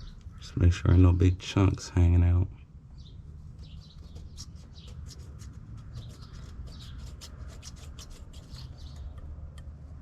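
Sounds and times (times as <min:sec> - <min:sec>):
razor blade scraping metal: 0:04.2 - 0:09.0.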